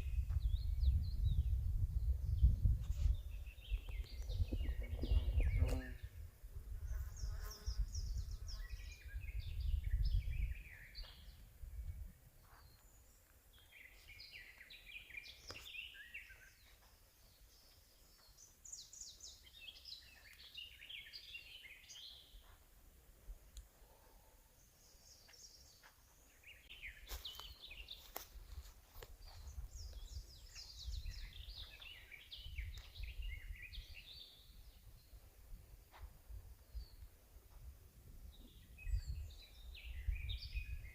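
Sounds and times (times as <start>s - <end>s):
wind rumble on microphone: 0.0s - 12.4s, 27.8s - 40.9s
songbirds singing: 0.0s - 22.6s, 23.5s - 37.5s, 38.2s - 40.9s.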